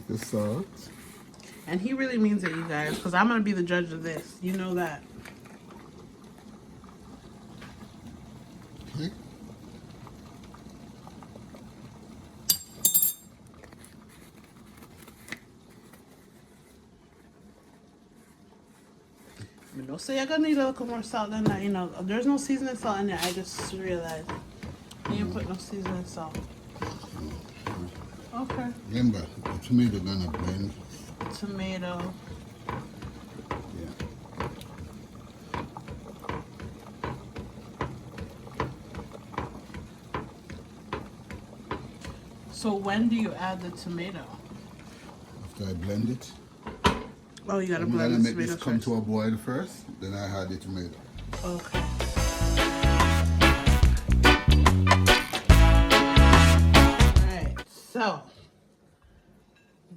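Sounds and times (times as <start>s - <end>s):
kitchenware clinking: 12.4s - 13.4s
spoon knocking against pan: 23.5s - 30.5s, 31.1s - 34.9s, 35.5s - 42.2s.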